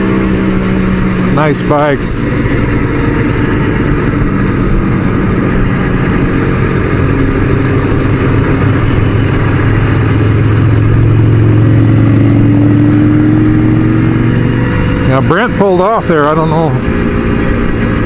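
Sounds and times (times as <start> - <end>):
motorcycle engine running: 0.0 - 18.0
rushing wind: 0.0 - 18.0.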